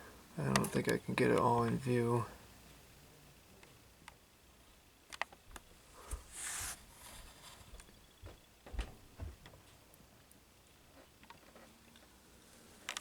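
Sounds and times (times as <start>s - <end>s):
brief hiss: 6.0s - 7.7s.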